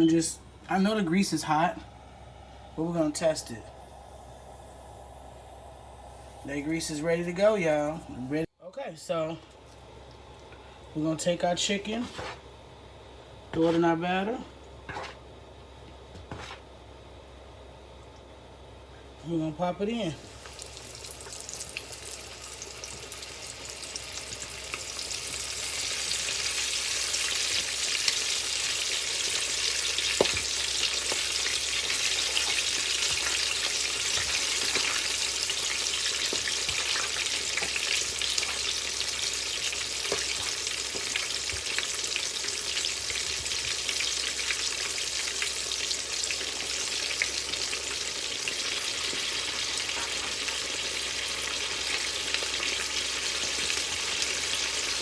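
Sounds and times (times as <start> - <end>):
chicken sizzling in hot oil: 20.2 - 55.0.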